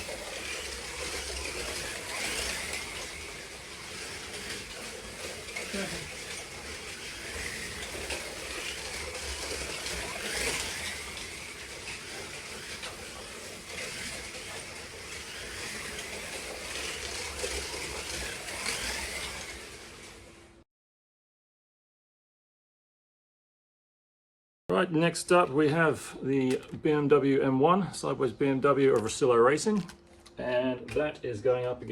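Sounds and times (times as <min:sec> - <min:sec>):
slot car motors whining: 0:00.0 - 0:20.6.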